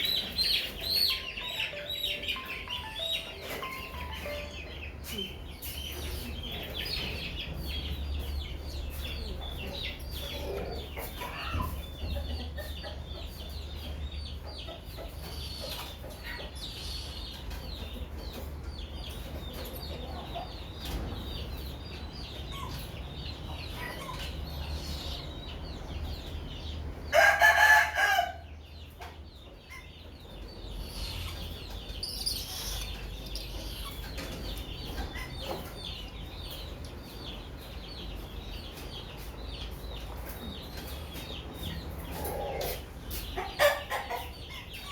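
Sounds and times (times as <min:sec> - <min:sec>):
faint high-pitched chirping: 0:30.9 - 0:35.6.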